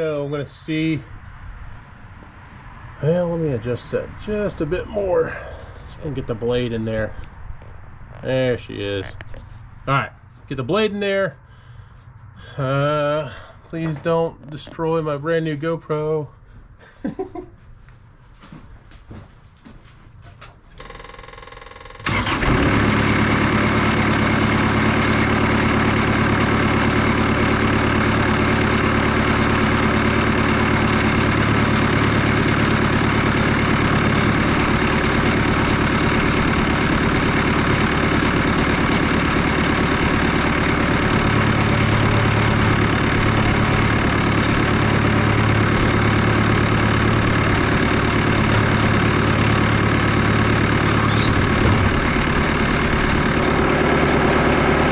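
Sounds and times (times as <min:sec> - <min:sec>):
bandsaw sawmill cutting log: 0:22.0 - 0:54.9.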